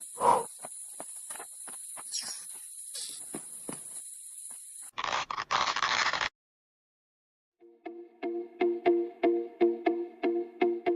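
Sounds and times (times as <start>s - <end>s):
high-pitched insect trill: 0.0s - 4.9s.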